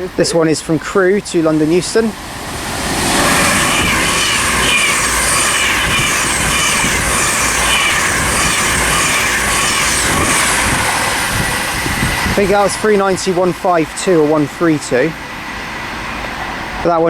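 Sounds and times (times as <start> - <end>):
wheels on rails: 0.0 - 16.8
electric train passing at speed: 0.0 - 17.0
rushing air: 1.4 - 13.9.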